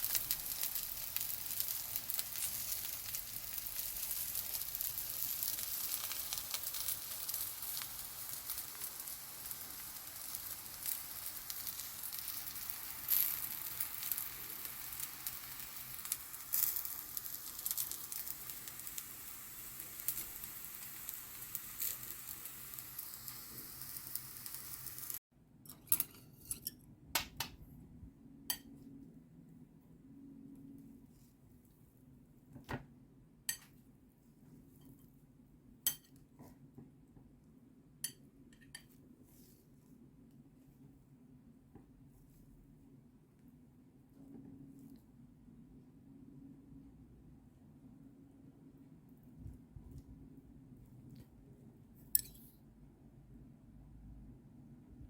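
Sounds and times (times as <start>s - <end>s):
pancake sizzling in oil: 0.0s - 25.2s.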